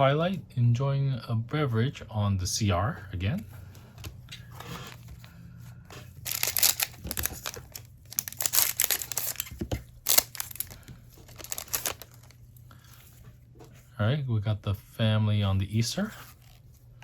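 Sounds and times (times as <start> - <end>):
plastic wrapper crinkling and tearing: 6.2 - 12.4.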